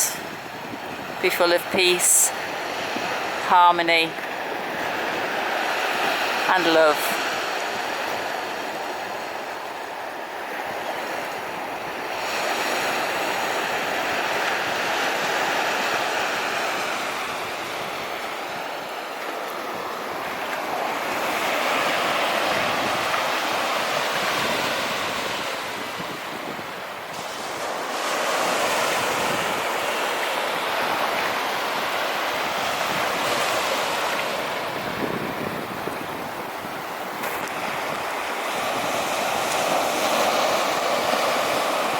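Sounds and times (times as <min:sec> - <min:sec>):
surf breaking on a beach: 0:00.0 - 0:41.9
wind on microphone: 0:00.0 - 0:41.9.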